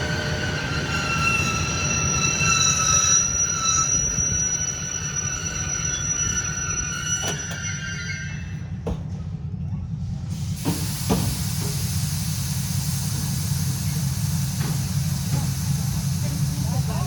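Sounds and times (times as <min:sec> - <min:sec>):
train brakes squealing: 0:00.0 - 0:08.8, 0:10.3 - 0:17.0
air hissing: 0:10.3 - 0:17.0.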